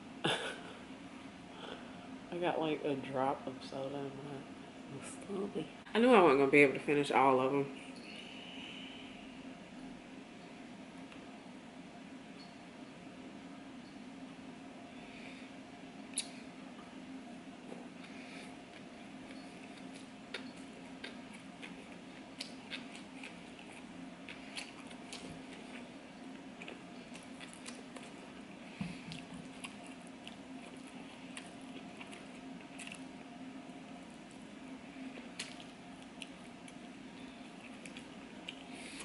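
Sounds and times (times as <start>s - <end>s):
small mouth clicks: 16.1s - 16.4s
wet chewing mouth sounds: 17.8s - 25.9s.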